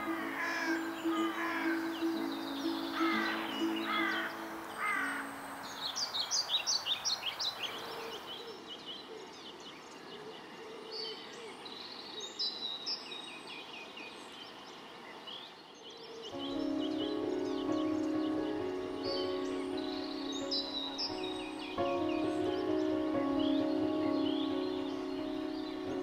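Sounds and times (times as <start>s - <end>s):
bird singing high notes: 0.0s - 6.8s, 16.4s - 26.0s
small birds chirping: 0.0s - 26.0s.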